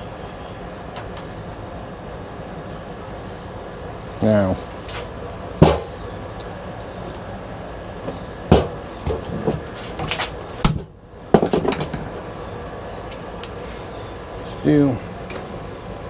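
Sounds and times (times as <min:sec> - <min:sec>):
sharp metal hits: 0:05.6 - 0:06.1
metal parts knocking and clanking: 0:08.0 - 0:12.2.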